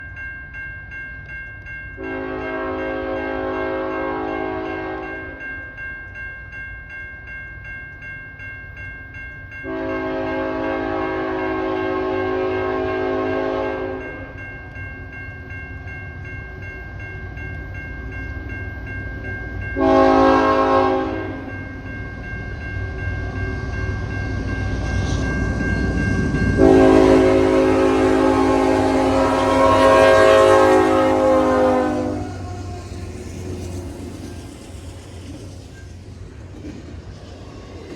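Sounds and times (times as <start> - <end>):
locomotive air horn blasts: 2.0 - 5.1, 9.7 - 14.0, 19.8 - 21.4, 26.6 - 32.8
train rumbling: 9.4 - 37.9.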